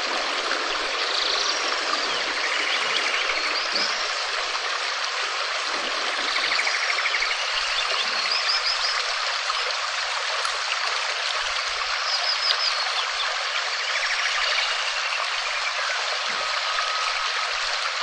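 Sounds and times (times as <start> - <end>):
rain falling: 0.0 - 7.3.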